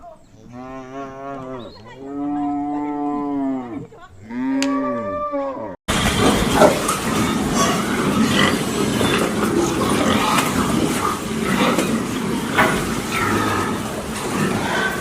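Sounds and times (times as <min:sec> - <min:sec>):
cow mooing: 0:00.5 - 0:05.8
rough noisy sound: 0:05.9 - 0:15.0.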